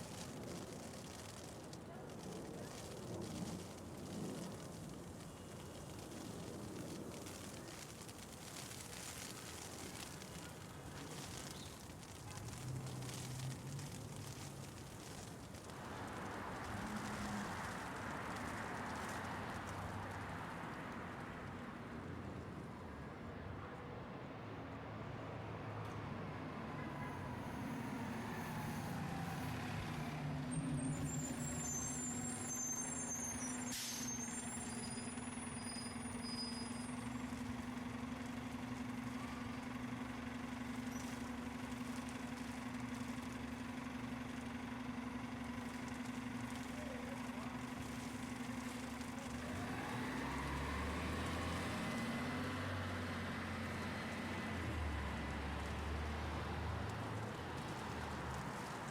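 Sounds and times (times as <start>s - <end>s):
city street traffic: 0.0s - 58.9s
heavy vehicle engine humming: 8.4s - 21.4s, 27.0s - 58.9s.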